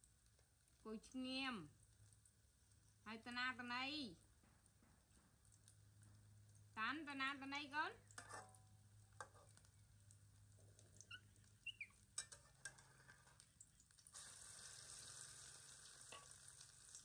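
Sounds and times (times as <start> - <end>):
metal spatula scraping a wok: 8.2 - 8.6, 9.2 - 9.6, 12.2 - 13.4
food sizzling in a wok: 14.1 - 17.0.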